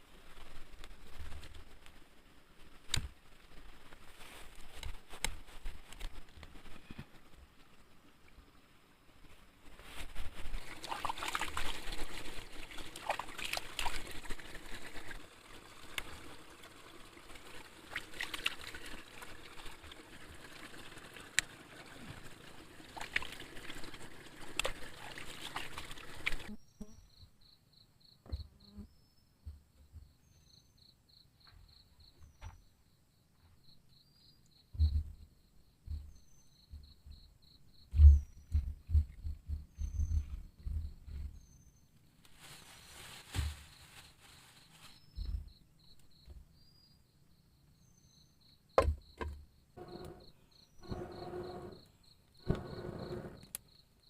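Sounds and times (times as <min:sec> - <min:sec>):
water trickling and splashing: 0:10.2 - 0:26.5
insects trilling: 0:42.4 - 0:54.0.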